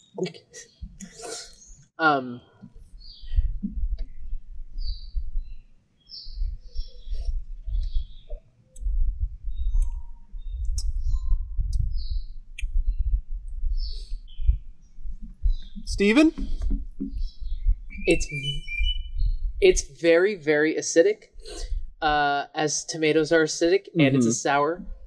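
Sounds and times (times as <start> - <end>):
small birds chirping: 0.0 - 1.9, 2.5 - 20.2
uneven low rumble: 6.3 - 19.9.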